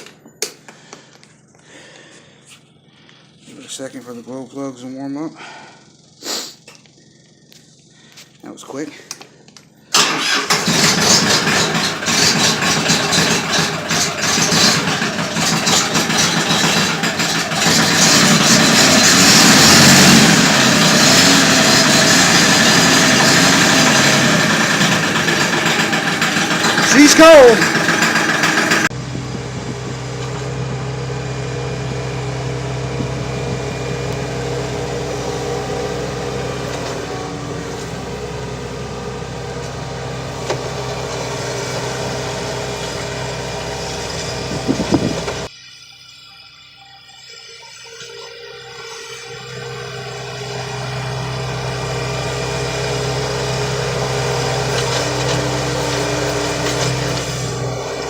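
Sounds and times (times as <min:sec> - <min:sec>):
tractor diesel engine idling: 0:09.9 - 0:45.5, 0:49.3 - 0:58.0.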